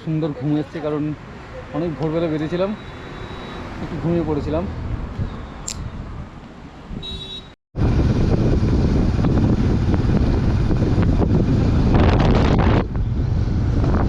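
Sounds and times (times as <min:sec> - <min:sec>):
wind buffeting microphone: 0:04.7 - 0:07.2, 0:07.8 - 0:14.0.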